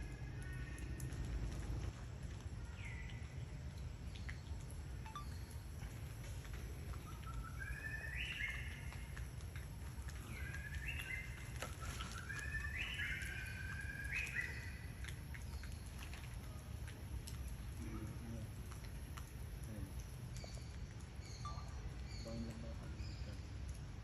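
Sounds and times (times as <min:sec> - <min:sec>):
low outdoor rumble: 0:00.0 - 0:24.0
bird calling in clear notes: 0:06.9 - 0:09.2, 0:10.1 - 0:14.9.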